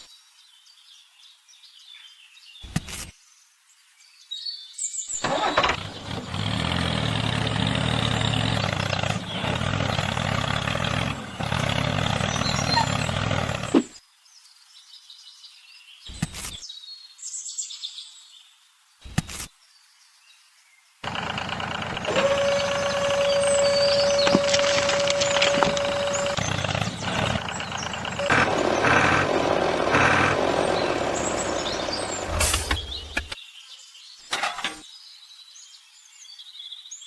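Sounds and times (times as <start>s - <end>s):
vehicle engine starting and running: 5.2s - 13.9s, 21.0s - 33.4s.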